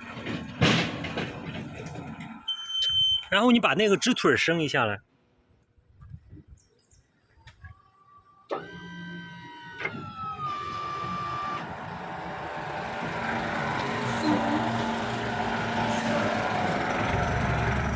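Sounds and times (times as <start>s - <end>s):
hydraulic pump motor whining: 8.4s - 17.5s.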